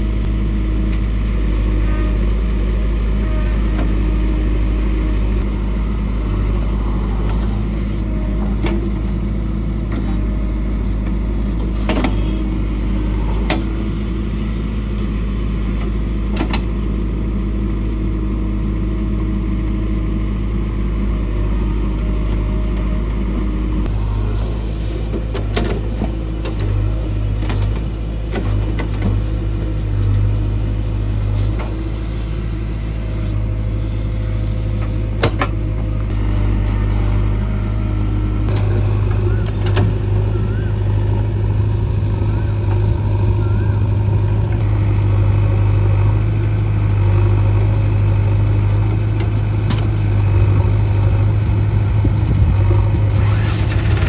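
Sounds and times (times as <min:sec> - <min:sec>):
diesel engine running under load: 0:00.0 - 0:54.0
metal clanks from backhoe: 0:52.4 - 0:54.0.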